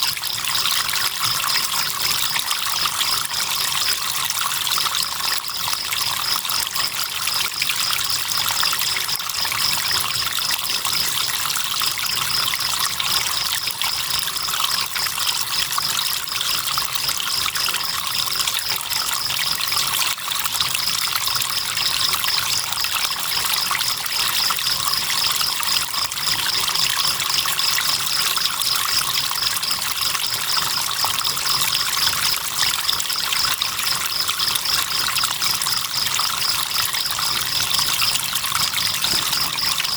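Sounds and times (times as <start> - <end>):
crickets chirping: 4.8 - 10.2, 17.3 - 39.9.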